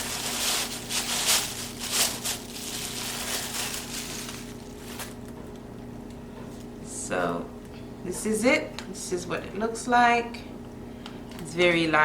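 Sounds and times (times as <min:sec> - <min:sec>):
packaging crinkling and rustling: 0:00.0 - 0:05.4.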